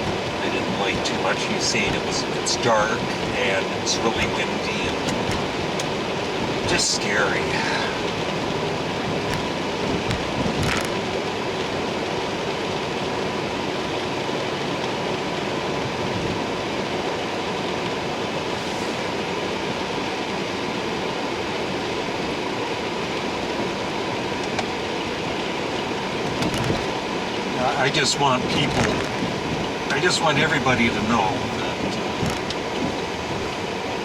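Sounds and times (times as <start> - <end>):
faint steady hum: 0.0 - 34.0
wind and freezing rain rushing: 0.0 - 34.0.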